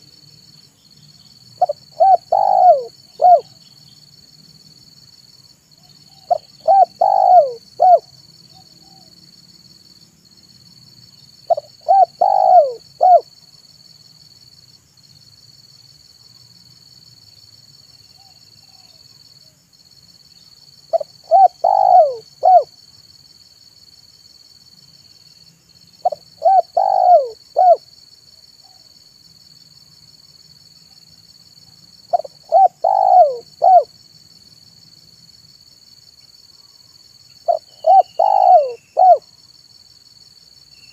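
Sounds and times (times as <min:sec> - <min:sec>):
dove cooing: 0:01.6 - 0:03.5, 0:06.1 - 0:09.1, 0:11.5 - 0:13.3, 0:20.9 - 0:22.7, 0:26.0 - 0:27.8, 0:32.1 - 0:33.9, 0:37.5 - 0:39.3.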